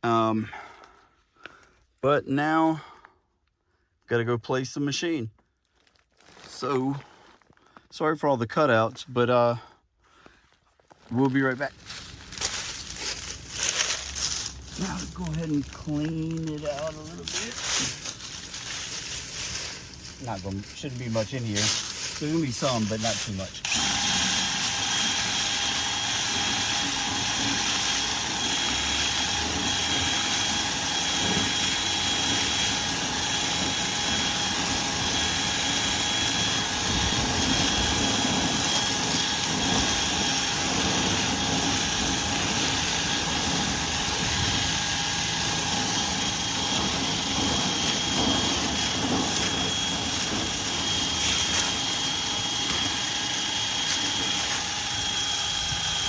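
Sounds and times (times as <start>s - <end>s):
vent cleaning motor whining: 11.8s - 56.0s.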